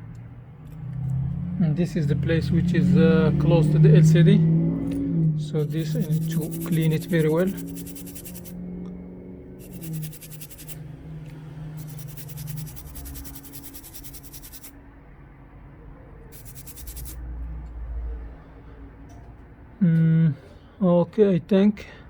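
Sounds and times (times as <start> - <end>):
toothbrush scrubbing circuit board: 5.6 - 8.6, 9.6 - 10.8, 11.7 - 14.8, 16.3 - 17.2.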